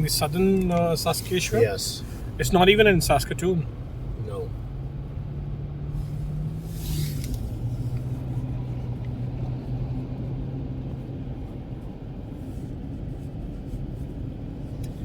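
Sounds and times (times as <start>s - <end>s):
car engine and road drone: 0.0s - 15.0s
brief hiss: 6.6s - 7.5s.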